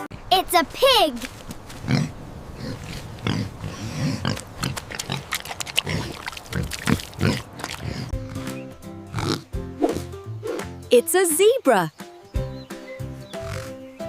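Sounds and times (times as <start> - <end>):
pig grunting: 1.8 - 8.5, 9.1 - 10.1, 13.4 - 13.8.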